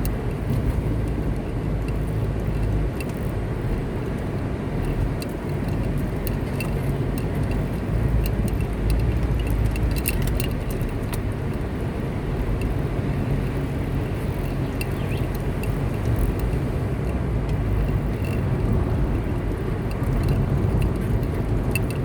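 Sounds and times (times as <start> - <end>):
car engine and tyres rumbling: 0.0 - 22.0
light clicks and ticks: 0.0 - 22.0.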